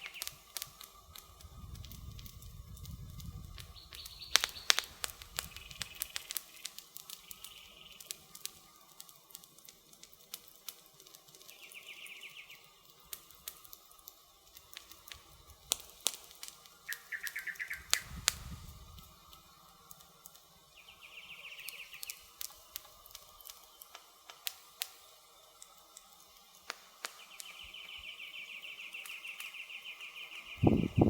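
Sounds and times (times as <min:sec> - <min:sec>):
wood fire crackling and popping: 0:00.0 - 0:31.0
bird trilling: 0:16.9 - 0:18.2.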